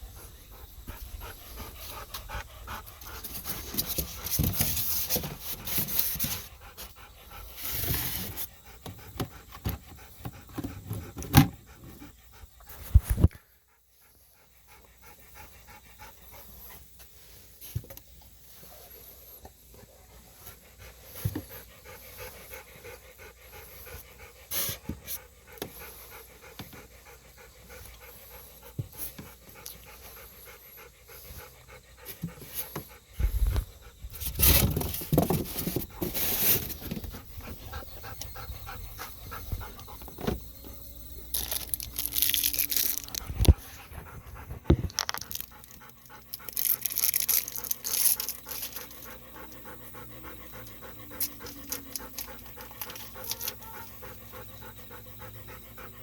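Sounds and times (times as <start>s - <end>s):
dog panting: 0.0s - 17.6s, 18.4s - 56.0s.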